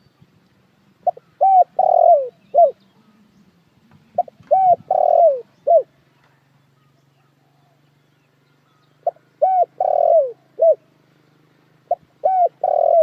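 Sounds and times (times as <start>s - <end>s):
dove cooing: 1.0s - 3.3s, 4.0s - 6.0s, 9.0s - 10.9s, 11.9s - 13.0s.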